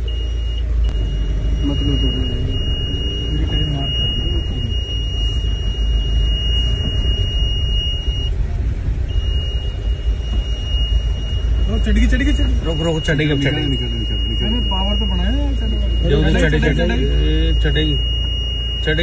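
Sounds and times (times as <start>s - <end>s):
engine low rumble: 0.0s - 19.0s
high-pitched tone: 9.1s - 19.0s.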